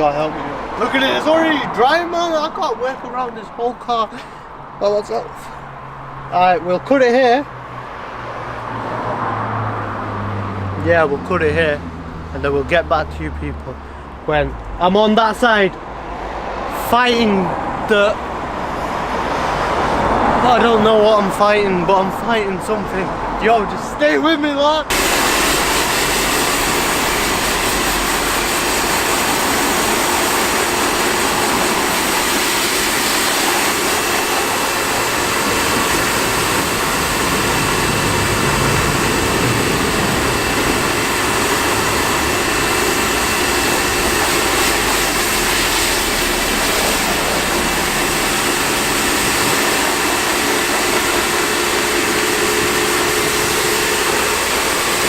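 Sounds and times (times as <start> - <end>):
pressure washer motor humming: 24.9 - 55.0
water jet hissing: 24.9 - 55.0.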